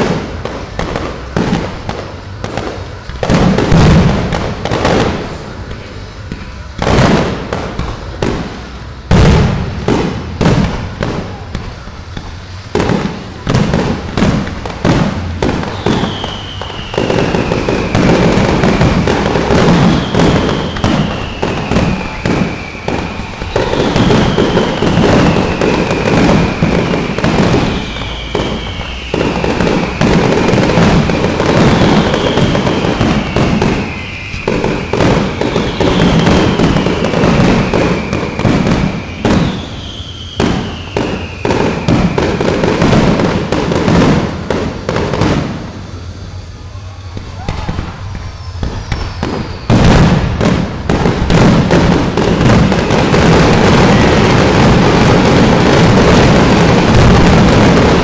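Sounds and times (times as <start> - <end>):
firework bangs: 0.0 - 58.0
firework crackling: 0.0 - 58.0
falling whistle-like tone: 15.6 - 18.9, 19.8 - 30.8, 31.6 - 42.4, 45.8 - 49.9.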